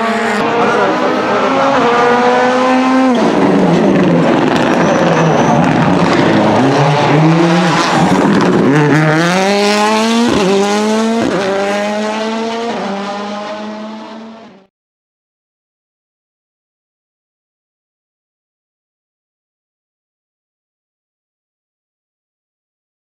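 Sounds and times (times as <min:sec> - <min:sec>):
rally car engine accelerating: 0:00.0 - 0:14.7.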